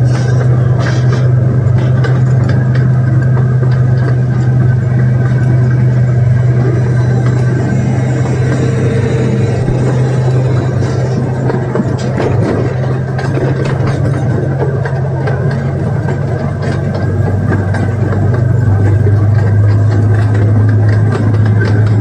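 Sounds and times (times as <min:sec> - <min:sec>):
miniature train engine drone: 0:00.0 - 0:22.0.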